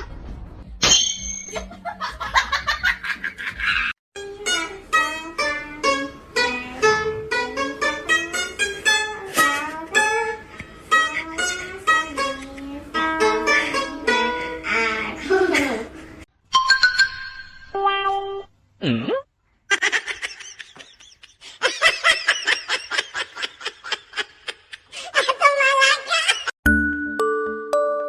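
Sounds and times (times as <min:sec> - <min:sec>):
plucked strings bouncy tune: 0:04.2 - 0:15.1.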